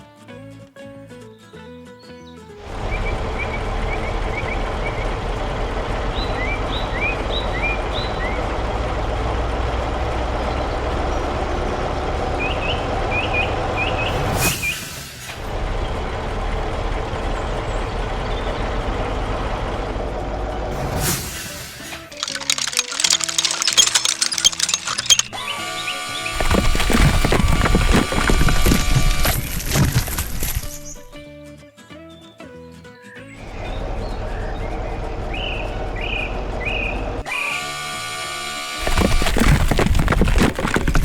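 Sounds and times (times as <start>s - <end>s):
truck diesel engine running: 2.6s - 31.2s, 33.4s - 41.0s.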